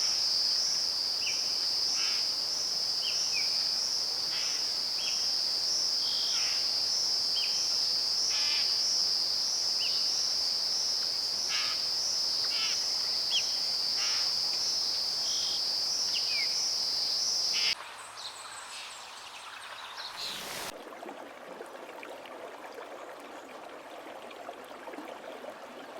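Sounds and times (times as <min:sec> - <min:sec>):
crickets chirping: 0:00.0 - 0:20.7
soft even rushing sound: 0:20.2 - 0:20.7.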